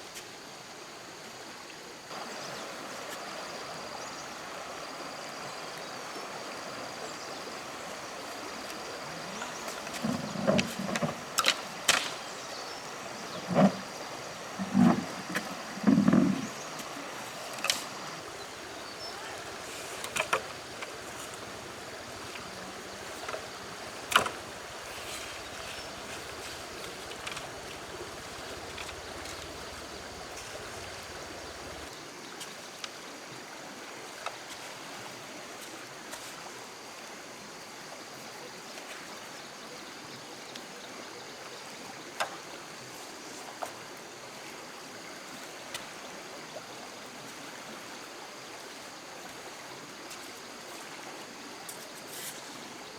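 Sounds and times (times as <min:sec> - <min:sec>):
flowing water rushing: 0:02.1 - 0:32.2.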